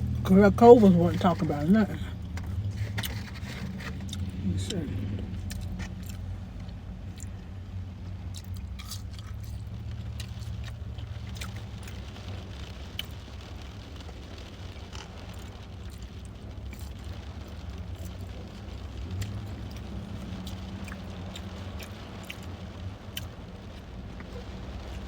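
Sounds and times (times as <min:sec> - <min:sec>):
steady low hum: 0:00.0 - 0:14.4
food and packaging rustling: 0:00.1 - 0:06.7
person chewing: 0:01.2 - 0:07.4, 0:08.3 - 0:11.6, 0:20.4 - 0:22.5, 0:23.1 - 0:23.3.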